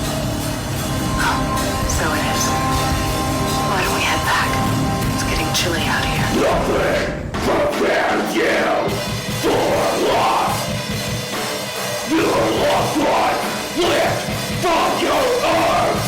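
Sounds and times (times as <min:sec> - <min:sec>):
heavy metal band playing: 0:00.0 - 0:16.0
harsh screamed vocals: 0:05.8 - 0:10.8, 0:12.0 - 0:16.0.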